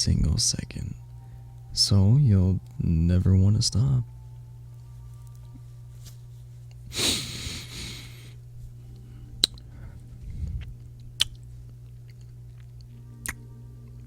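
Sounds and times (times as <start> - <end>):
faint steady hum: 0.0 - 14.0
breathy rush: 6.9 - 8.4.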